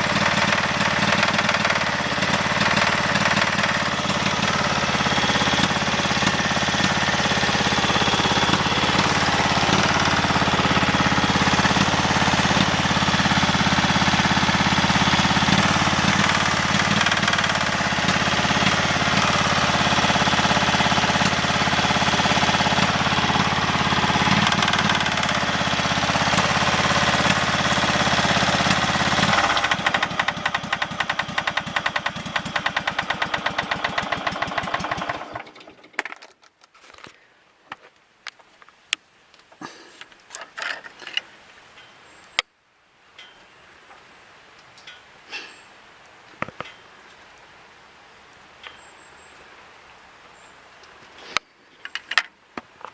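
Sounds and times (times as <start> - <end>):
tractor engine knocking: 0.0 - 36.0.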